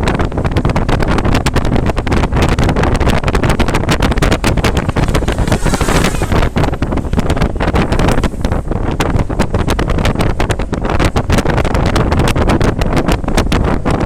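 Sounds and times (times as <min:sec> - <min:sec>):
wind buffeting the microphone: 0:00.0 - 0:14.0.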